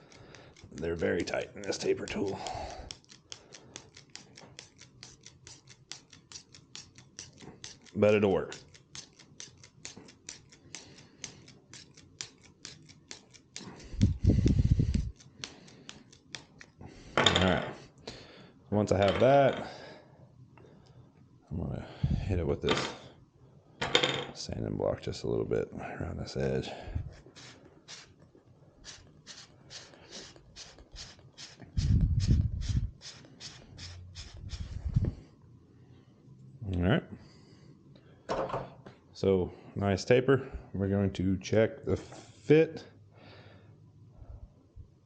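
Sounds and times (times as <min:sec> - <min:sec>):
blade scraping arrow shaft: 0:00.0 - 0:16.7, 0:27.0 - 0:28.2, 0:28.8 - 0:35.1
sanding block rubbing wood: 0:00.9 - 0:10.6, 0:27.2 - 0:28.1, 0:28.8 - 0:34.9.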